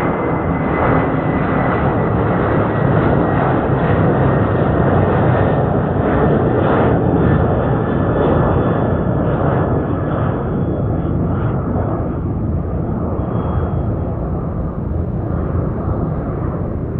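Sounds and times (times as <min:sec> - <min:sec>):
jet engines rumbling at takeoff: 0:00.0 - 0:16.9
high engine whine: 0:05.2 - 0:16.9.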